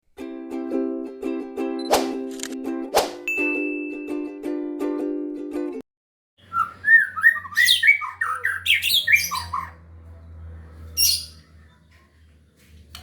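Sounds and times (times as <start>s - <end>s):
bird singing whistled notes: 6.4s - 9.8s, 10.9s - 11.4s.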